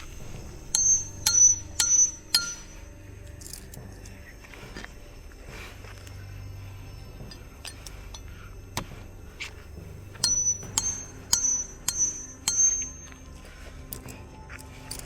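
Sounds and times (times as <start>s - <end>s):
hard objects clinking: 0.0s - 2.9s, 9.5s - 13.1s
sharp ringing strikes: 0.0s - 2.9s, 9.6s - 13.3s.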